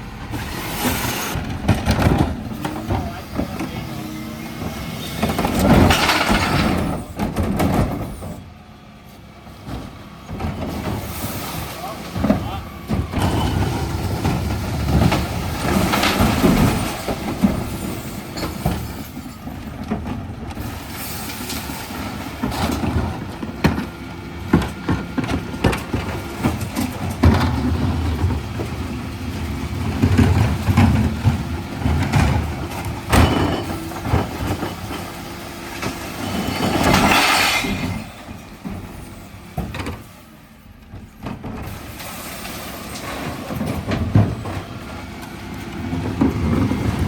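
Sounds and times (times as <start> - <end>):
truck engine rumbling: 0.0 - 47.0
clattering and knocking: 1.4 - 3.8, 4.6 - 8.4, 29.6 - 39.0.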